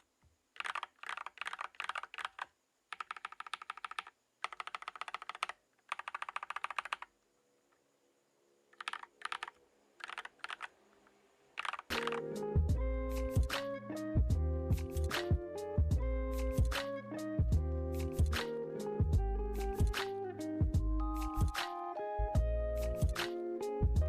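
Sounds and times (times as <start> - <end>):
mechanical keyboard typing: 0.6 - 7.1, 8.8 - 10.7, 11.6 - 12.3
music: 11.9 - 24.0.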